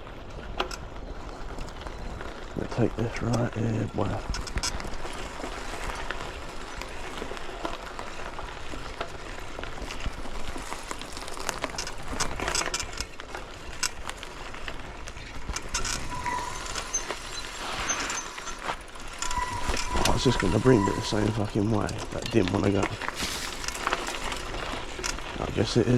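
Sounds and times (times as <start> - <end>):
bike rattling over bumps: 0.0 - 25.9
bike tyres rolling on dirt: 0.0 - 25.9
wind noise: 11.7 - 25.9.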